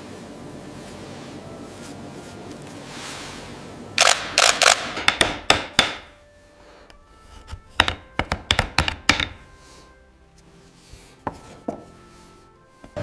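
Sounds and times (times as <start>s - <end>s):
sharp clicks and knocks: 4.0s - 6.1s.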